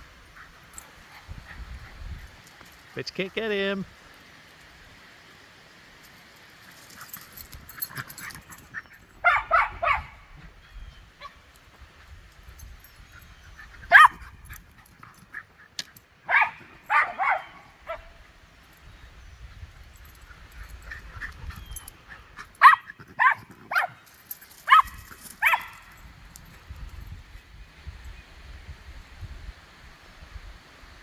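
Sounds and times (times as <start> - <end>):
small dog barking: 9.2 - 10.3, 13.9 - 14.3, 16.3 - 18.2, 22.6 - 24.0, 24.7 - 25.9.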